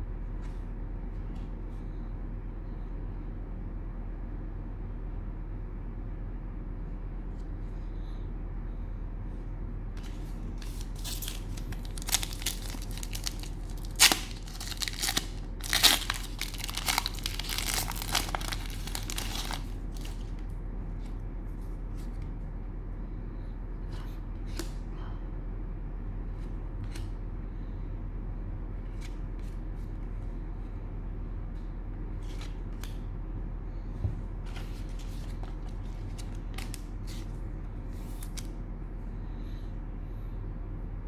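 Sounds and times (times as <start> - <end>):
steady low hum: 0.0 - 41.0
cellophane tearing and crinkling: 10.0 - 20.4.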